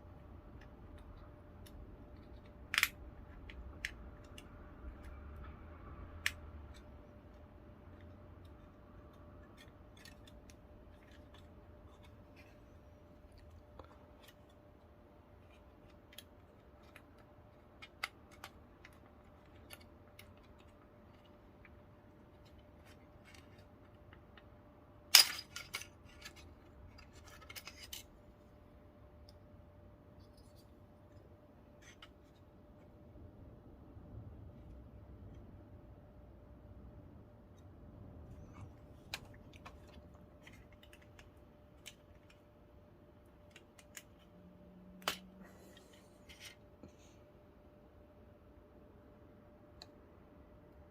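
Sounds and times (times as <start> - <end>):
plastic parts clicking and tapping: 0.4 - 28.1, 38.3 - 46.6.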